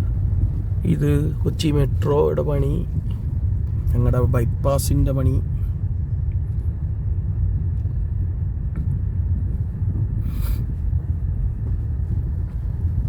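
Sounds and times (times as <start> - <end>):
car rumble inside cabin: 0.0 - 13.0.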